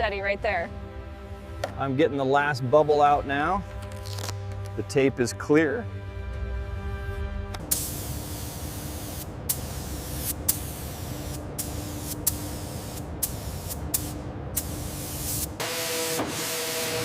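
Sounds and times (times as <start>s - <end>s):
spray hissing: 7.6s - 17.0s.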